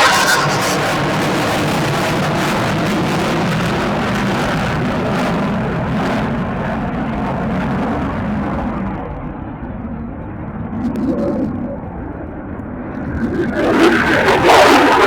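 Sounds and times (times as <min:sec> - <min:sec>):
jet engine hiss: 0:00.0 - 0:02.0
jet engine rumble: 0:00.0 - 0:04.4.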